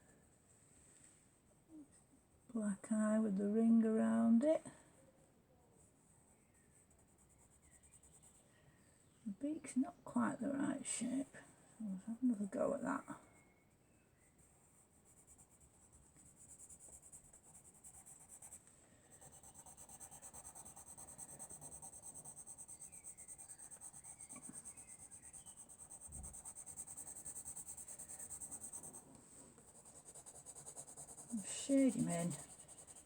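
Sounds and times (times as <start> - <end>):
pencil scratching on paper: 6.6 - 8.4, 14.4 - 33.0.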